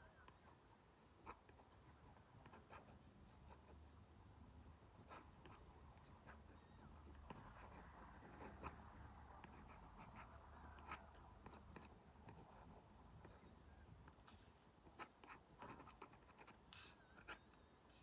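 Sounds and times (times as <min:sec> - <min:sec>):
stylus scratching on screen: 0:05.0 - 0:17.6.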